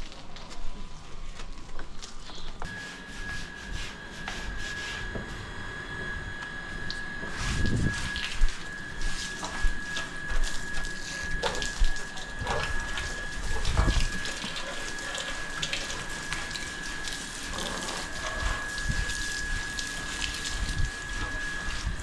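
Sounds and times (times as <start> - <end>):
steady high whine: 0.0 - 22.0
water running and splashing: 6.8 - 22.0.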